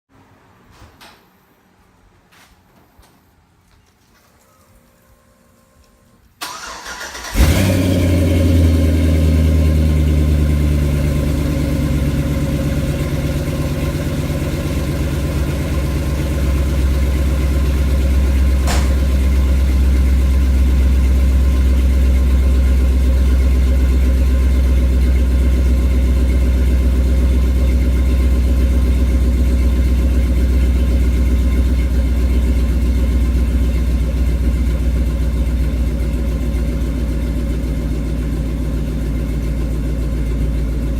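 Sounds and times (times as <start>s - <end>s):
engine cranking on starter: 6.4s - 9.2s
engine idling loudly: 7.3s - 40.9s.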